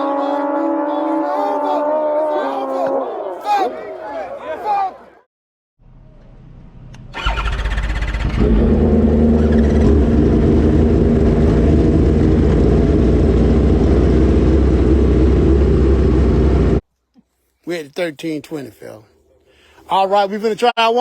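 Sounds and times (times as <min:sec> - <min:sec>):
motorcycle engines roaring: 0:00.0 - 0:04.2, 0:07.1 - 0:16.8.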